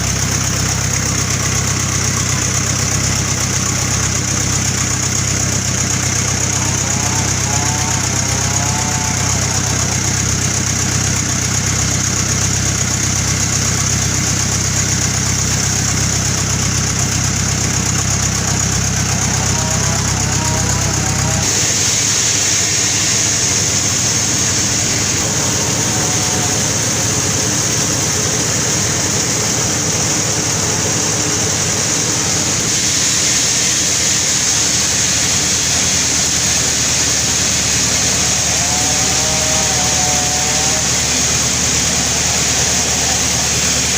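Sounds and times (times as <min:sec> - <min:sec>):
deep engine rumble: 0:00.0 - 0:43.9
saw cutting log: 0:02.9 - 0:12.4, 0:17.4 - 0:28.8, 0:34.8 - 0:43.9.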